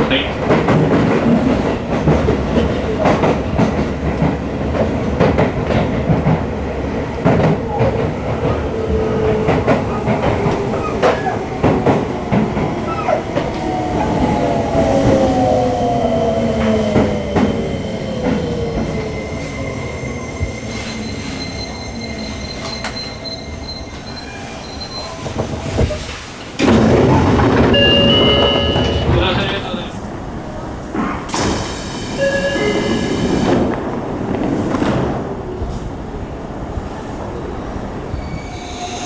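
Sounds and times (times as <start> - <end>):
wheel rumble: 26.5 - 30.0
wheel squeal: 26.6 - 29.6, 31.6 - 33.6
train motor whine falling: 26.6 - 29.7.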